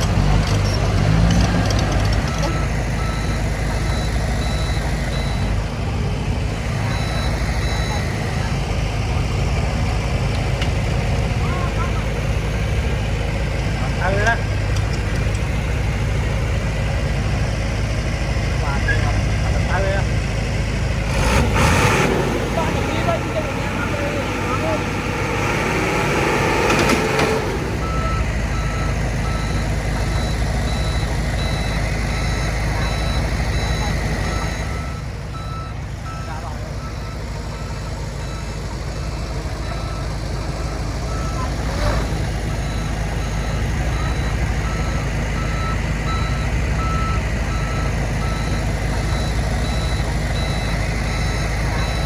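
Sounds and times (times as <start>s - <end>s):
reversing alarm beeping: 0.0s - 5.7s, 6.6s - 8.6s, 21.2s - 52.0s
diesel engine running: 0.0s - 52.0s.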